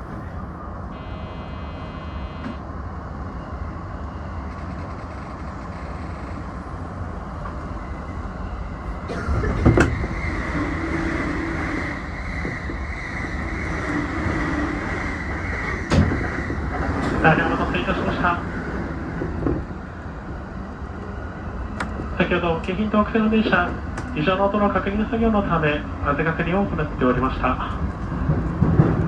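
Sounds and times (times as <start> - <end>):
electric train rumble: 0.0 - 29.0
high whine: 0.9 - 2.6.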